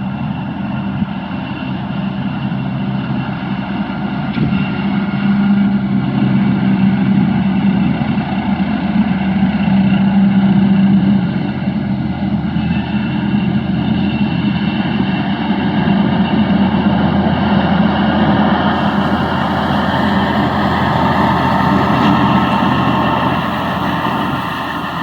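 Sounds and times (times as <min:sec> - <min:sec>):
tractor engine running: 0:18.7 - 0:25.0.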